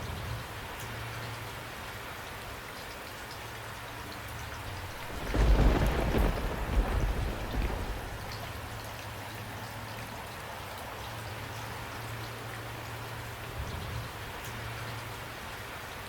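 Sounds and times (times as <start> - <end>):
steady rain: 0.0 - 16.0
thunder rumble: 4.4 - 9.1.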